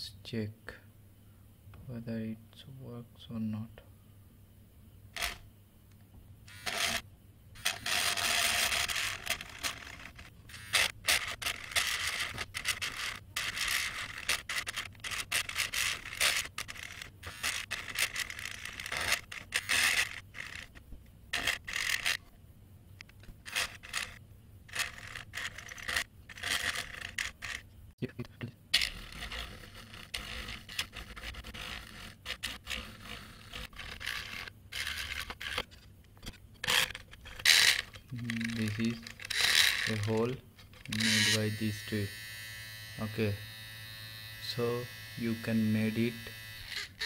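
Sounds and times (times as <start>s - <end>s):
small drill boring into plywood: 6.5s - 7.0s, 7.6s - 20.8s, 21.4s - 22.2s, 23.4s - 27.6s, 28.8s - 35.6s, 36.7s - 47.0s.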